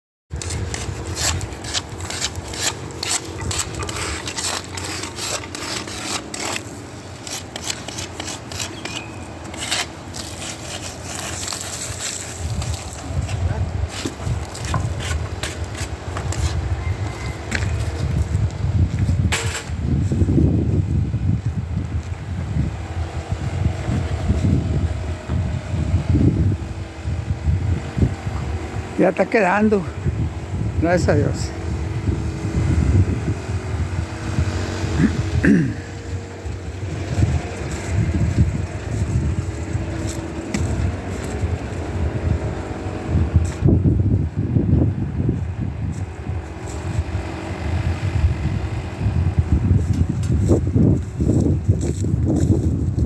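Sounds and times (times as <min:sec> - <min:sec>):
rough rasping and scraping strokes: 0:00.3 - 0:18.4, 0:19.0 - 0:20.4, 0:30.8 - 0:43.7, 0:45.9 - 0:48.0, 0:49.4 - 0:53.0
continuous gritty noise: 0:00.3 - 0:53.0
wind buffeting microphone: 0:00.3 - 0:53.0.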